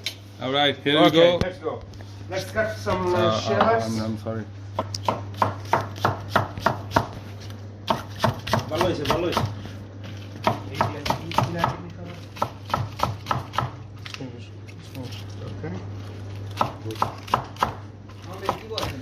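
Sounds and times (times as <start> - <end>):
knife chopping on cutting board: 4.7 - 13.8, 16.5 - 19.0.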